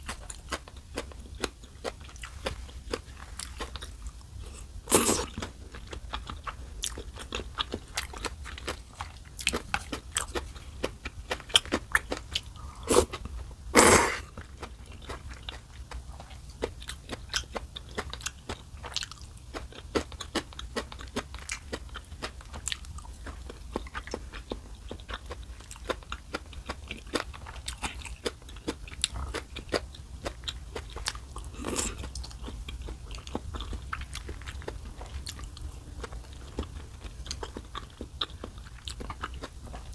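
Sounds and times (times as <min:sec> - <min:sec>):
chewing and crunching food: 0:00.0 - 0:39.9
slurping noodles: 0:04.5 - 0:05.4, 0:12.6 - 0:13.2, 0:13.8 - 0:14.4.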